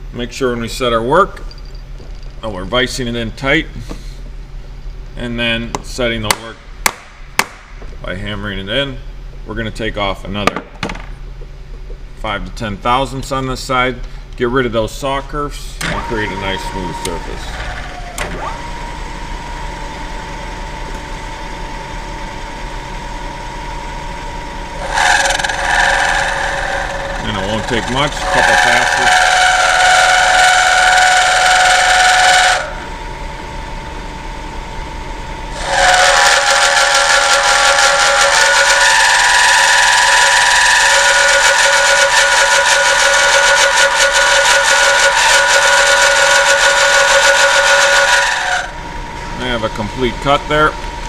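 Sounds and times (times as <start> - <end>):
end mill cutting metal: 15.8 - 18.9, 23.8 - 33.1, 35.5 - 51.0
milling spindle whine: 15.8 - 51.0.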